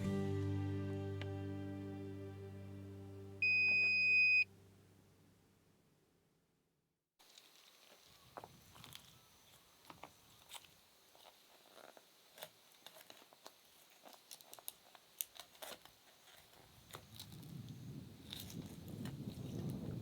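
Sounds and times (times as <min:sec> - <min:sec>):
faint small clicks and crackles: 0:07.2 - 0:20.0.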